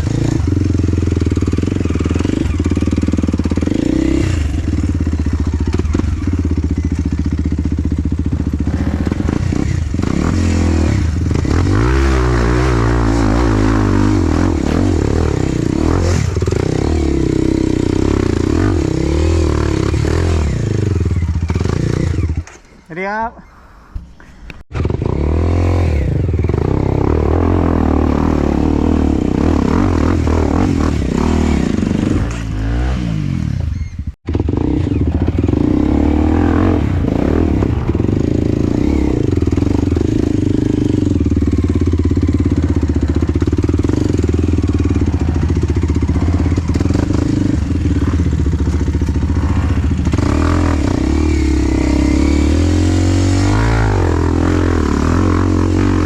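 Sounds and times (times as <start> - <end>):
dirt bike engine revving: 0.0 - 23.1, 24.7 - 56.0.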